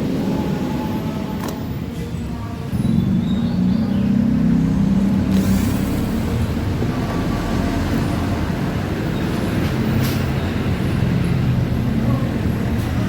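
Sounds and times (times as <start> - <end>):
vehicle engine running: 2.7 - 13.0.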